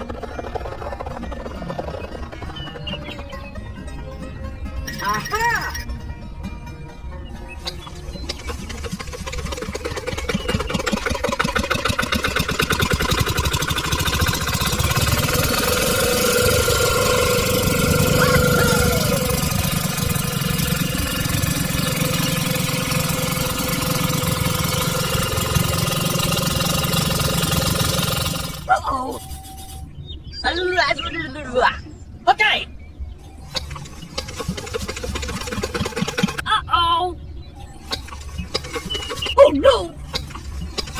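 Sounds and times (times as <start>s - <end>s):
small motor running: 7.8s - 29.8s, 33.5s - 36.4s, 37.9s - 40.9s.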